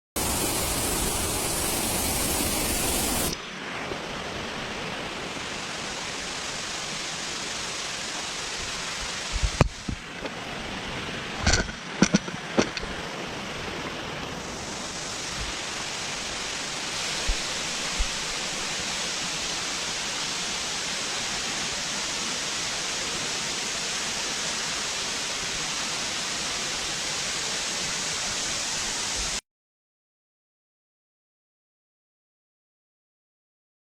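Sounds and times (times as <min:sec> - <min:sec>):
waterfall rushing: 0:00.2 - 0:29.4.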